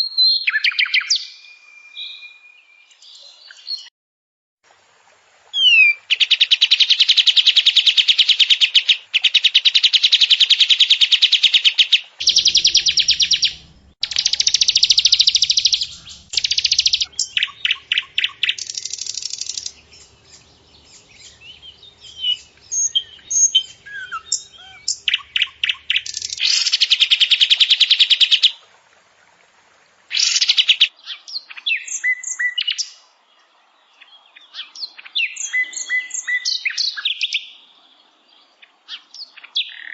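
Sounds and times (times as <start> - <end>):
bird chattering: 12.2 - 26.8
songbird trills and whistles: 12.2 - 27.5, 30.2 - 32.9, 34.4 - 37.5.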